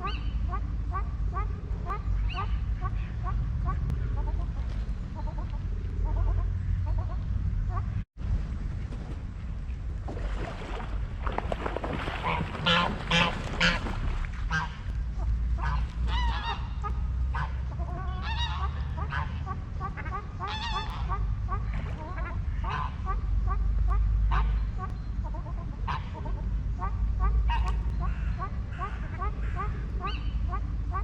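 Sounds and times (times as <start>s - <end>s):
duck-like calls: 0.0s - 8.0s, 12.2s - 31.0s
steady low rumble: 0.0s - 31.0s
geese honking: 12.2s - 31.0s.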